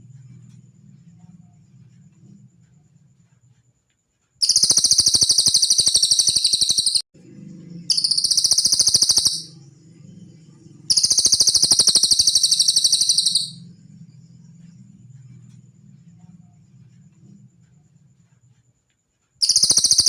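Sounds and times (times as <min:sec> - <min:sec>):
faint low hum: 0:00.0 - 0:20.0
bird rapid high trill: 0:04.4 - 0:07.0, 0:07.8 - 0:09.7, 0:10.8 - 0:13.7, 0:19.4 - 0:20.0.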